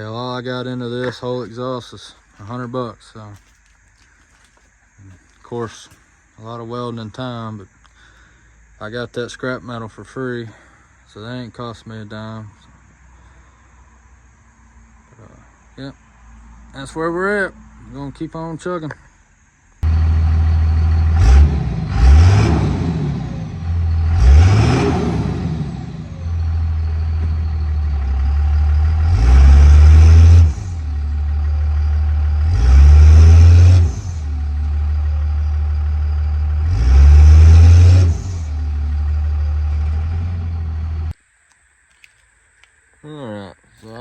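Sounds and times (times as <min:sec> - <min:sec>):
diesel engine idling: 0:19.8 - 0:41.2
diesel engine revving: 0:19.8 - 0:41.2.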